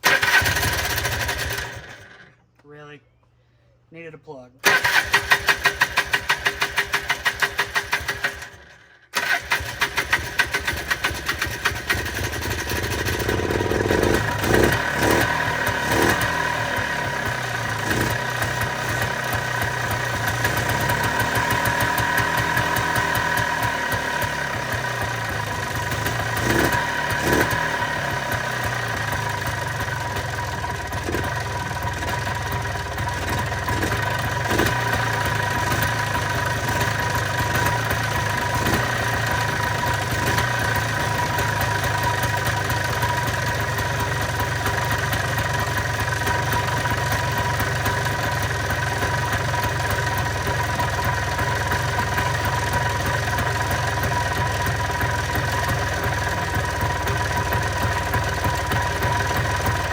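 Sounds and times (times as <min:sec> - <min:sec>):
engine idling: 0:04.6 - 0:59.9.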